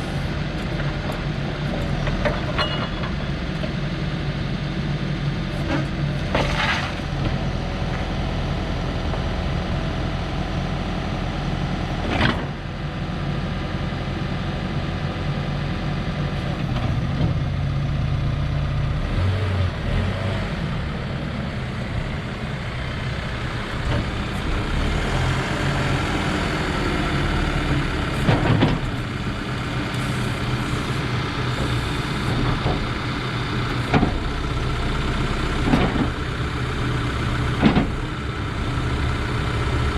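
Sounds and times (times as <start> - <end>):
diesel engine running: 0.0 - 39.9
hydraulics working: 21.7 - 39.9.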